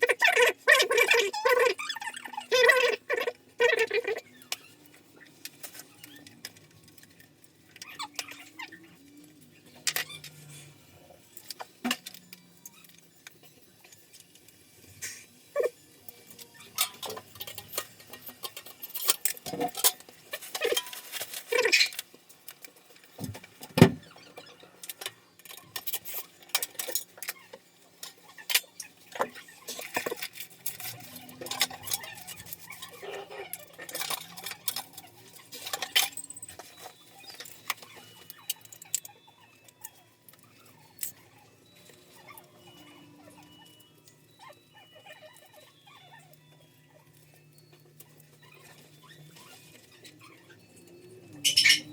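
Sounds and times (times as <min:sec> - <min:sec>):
tools clicking and rattling: 0:16.0 - 0:41.3, 0:50.8 - 0:51.9.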